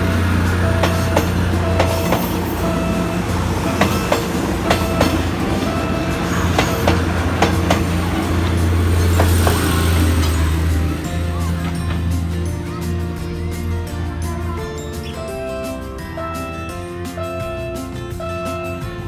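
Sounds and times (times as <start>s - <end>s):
train wheels clicking over rail joints: 0.0s - 13.7s
train engine hum: 0.0s - 19.0s.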